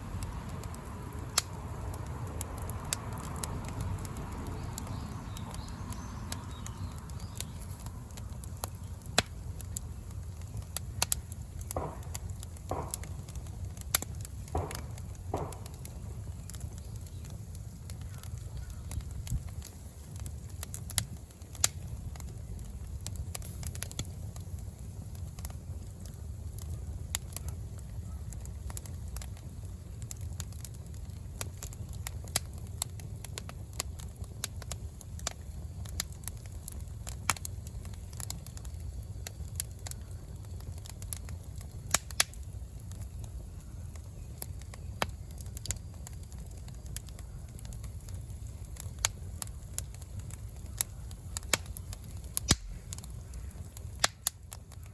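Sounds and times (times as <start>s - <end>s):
low steady rumble: 0.0s - 20.6s
bonfire crackling and popping: 0.0s - 54.9s.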